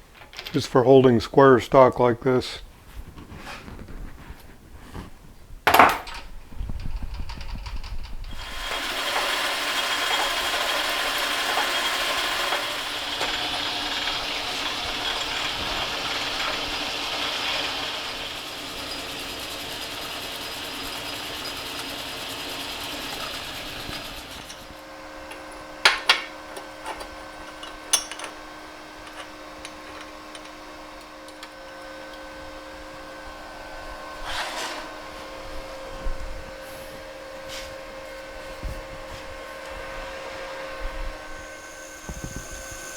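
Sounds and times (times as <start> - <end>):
harsh metal cutting noise: 8.3 - 24.8, 41.2 - 42.9
machine humming: 8.3 - 25.5, 34.9 - 42.9.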